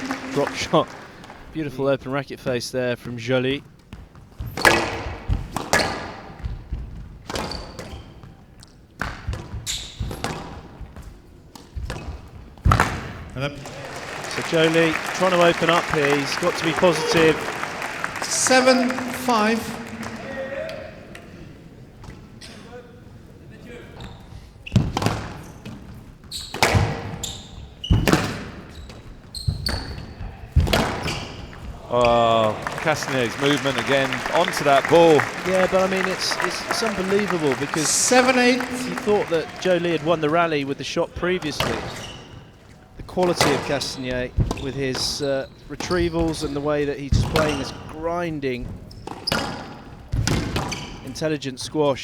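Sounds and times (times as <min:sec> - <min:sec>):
court shoes squeaking: 0:00.0 - 0:01.7, 0:03.4 - 0:51.8
squash ball knocks: 0:04.4 - 0:07.6, 0:26.5 - 0:27.2, 0:27.9 - 0:31.7.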